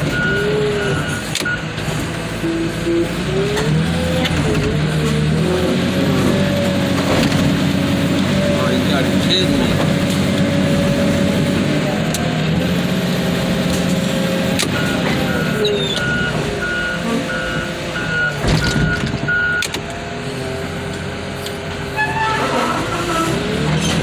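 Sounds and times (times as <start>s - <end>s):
heavy diesel machine running: 0.0s - 24.0s
backup alarm beeping: 14.7s - 19.7s.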